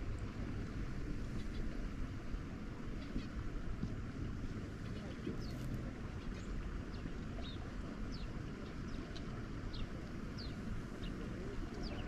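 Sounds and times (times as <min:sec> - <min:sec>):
low rumble of wind: 0:00.0 - 0:12.0
birds chirping: 0:04.8 - 0:12.0.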